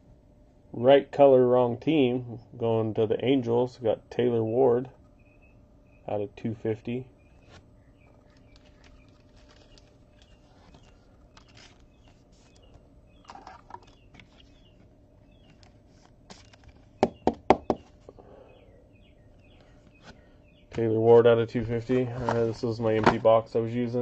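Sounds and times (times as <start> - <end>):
plastic card holders rustling: 7.3 - 18.1, 21.6 - 23.4.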